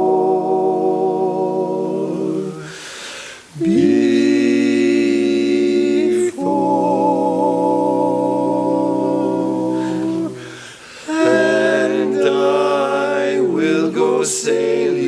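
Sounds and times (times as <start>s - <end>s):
quartet singing in close harmony: 0.0s - 15.0s
singer taking a breath: 2.6s - 3.5s, 9.9s - 11.1s.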